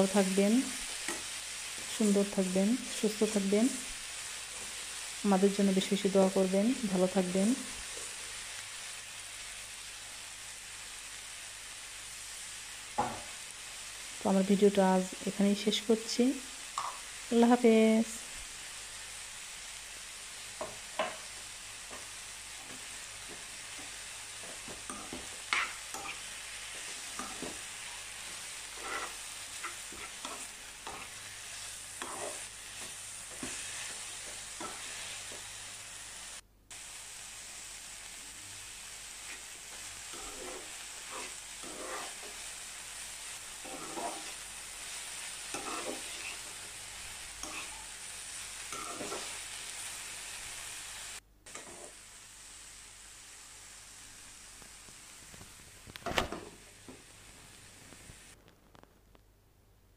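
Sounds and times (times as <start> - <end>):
leaves sizzling in a frying pan: 0.0 - 58.9
steel spoon scraping a pan: 22.6 - 35.4, 40.0 - 42.5, 43.5 - 48.0, 48.7 - 49.4, 51.5 - 52.0.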